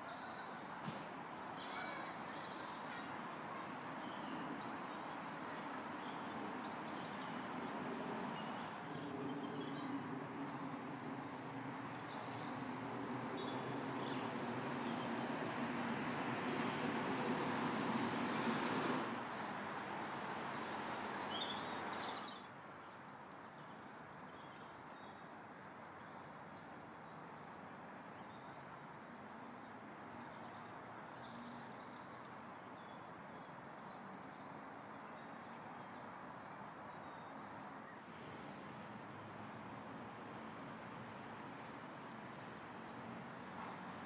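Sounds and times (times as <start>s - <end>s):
small birds chirping: 0.0s - 17.3s
traffic rumble: 0.0s - 22.6s, 27.4s - 44.0s.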